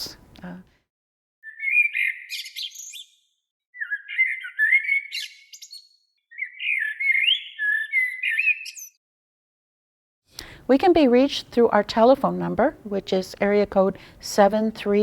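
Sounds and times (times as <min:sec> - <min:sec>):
songbird singing: 0:01.4 - 0:09.0.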